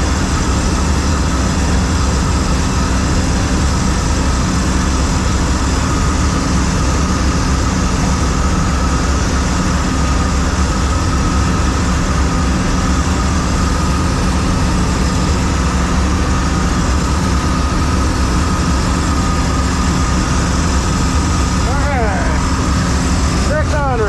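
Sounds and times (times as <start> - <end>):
combine engine drone: 0.0 - 24.0
high machine whine: 0.0 - 24.0.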